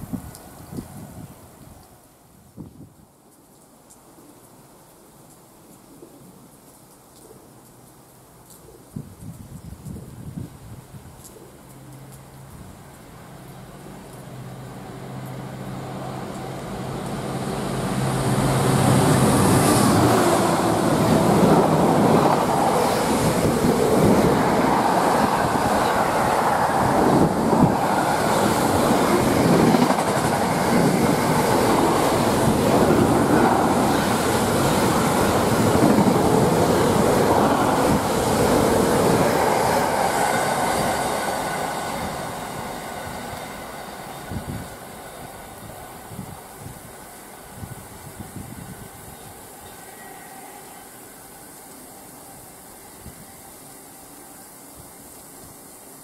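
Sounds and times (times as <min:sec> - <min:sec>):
diesel locomotive engine drone: 0:12.2 - 0:55.1
freight wagons clickety-clack: 0:28.8 - 0:31.8.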